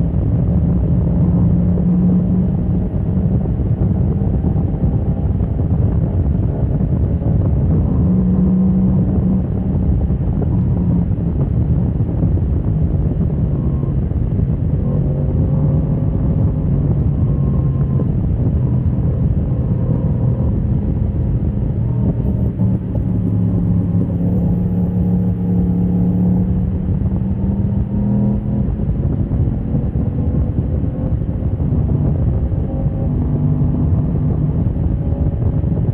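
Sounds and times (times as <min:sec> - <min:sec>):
wind and road noise: 0:00.0 - 0:35.9
motorcycle engine revving: 0:14.7 - 0:35.9.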